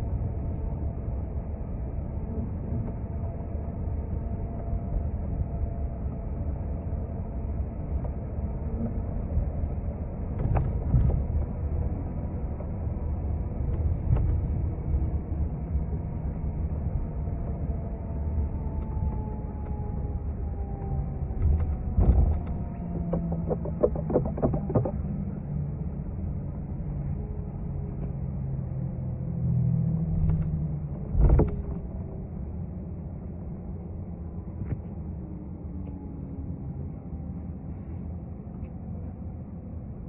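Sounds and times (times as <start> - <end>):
bus engine and road drone: 0.0 - 40.0
faint falling whine: 16.9 - 27.4.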